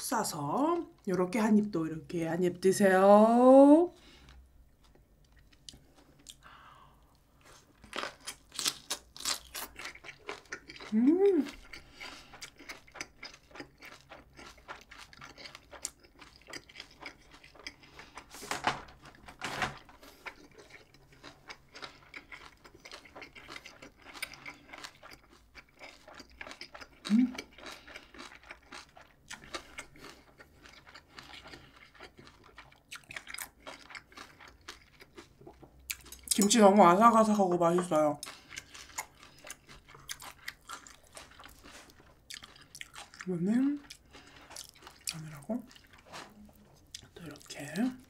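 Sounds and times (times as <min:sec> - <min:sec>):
wet crunchy chewing: 0:07.4 - 0:18.4, 0:19.8 - 0:36.5, 0:38.2 - 0:47.7
person humming: 0:10.9 - 0:11.5.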